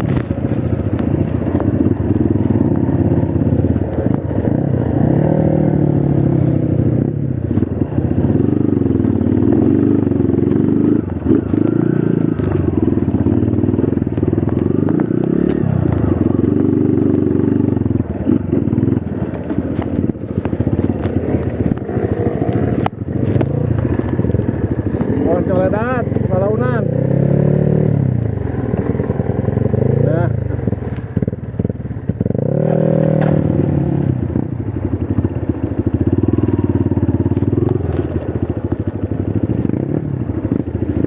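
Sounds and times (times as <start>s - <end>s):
sharp clicks and clatter: 0.0s - 5.0s, 18.0s - 26.7s, 36.9s - 41.0s
motorcycle engine revving: 0.0s - 41.0s.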